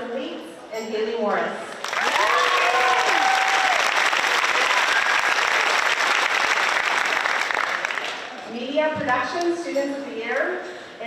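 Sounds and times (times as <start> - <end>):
audience applauding: 1.8 - 8.5
voices cheering: 2.0 - 5.8.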